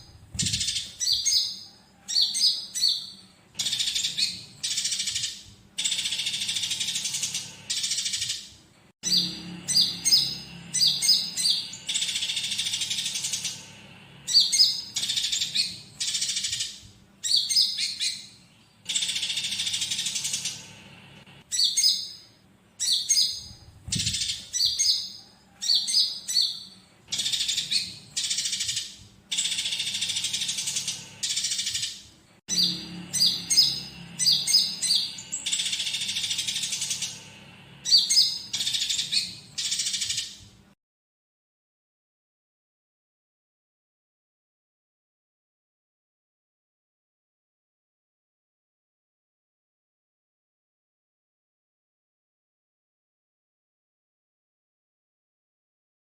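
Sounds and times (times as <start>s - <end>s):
songbird high chirps: 0.0s - 20.8s, 21.5s - 40.4s
harsh buzzy bird chatter: 0.0s - 40.4s.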